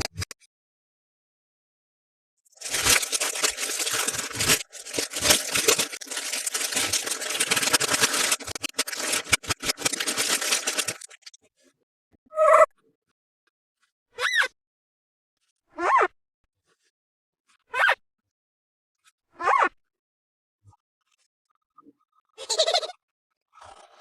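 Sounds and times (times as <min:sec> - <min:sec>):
plastic packaging crinkling: 0:02.5 - 0:11.3.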